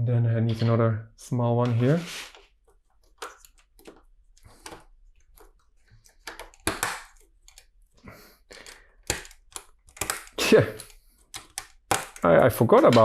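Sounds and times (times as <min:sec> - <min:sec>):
plastic bricks clicking: 0:03.1 - 0:07.7, 0:08.5 - 0:13.0.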